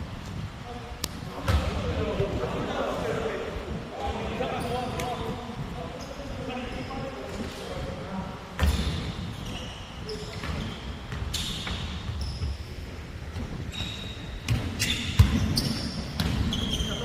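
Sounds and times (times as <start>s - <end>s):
sneakers squeaking on hardwood: 8.6s - 17.0s
basketball bouncing: 14.5s - 16.6s.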